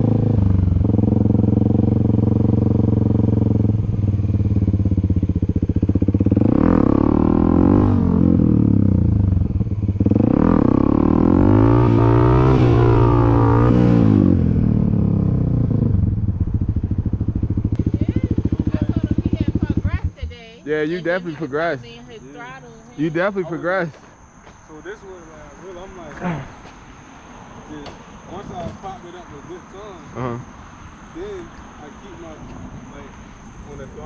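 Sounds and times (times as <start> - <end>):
dirt bike engine revving: 0.0 - 23.8.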